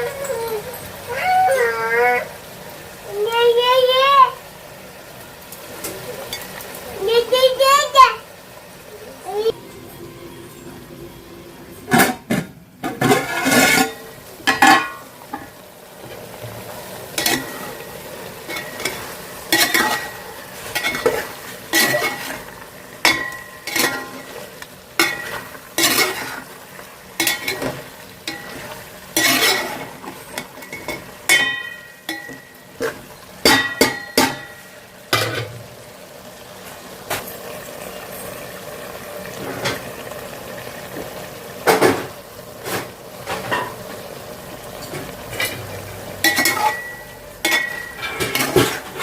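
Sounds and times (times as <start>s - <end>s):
frying sizzle: 0.0s - 49.0s
spoon scraping cooking pot: 12.8s - 15.0s, 27.2s - 31.4s.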